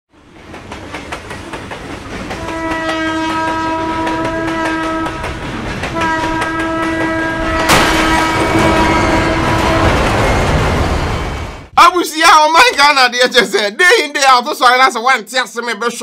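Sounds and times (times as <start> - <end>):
train wheels clicking on track: 0.2 - 11.1
train horn blasts: 2.4 - 10.2
sharp bang: 7.4 - 11.2.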